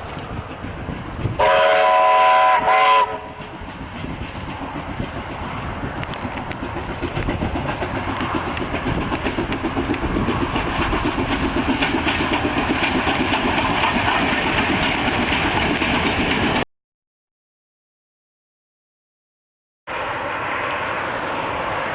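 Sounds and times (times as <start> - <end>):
steam train exhaust beats: 0.0 - 16.6
wheels clicking over rail joints: 3.3 - 16.6.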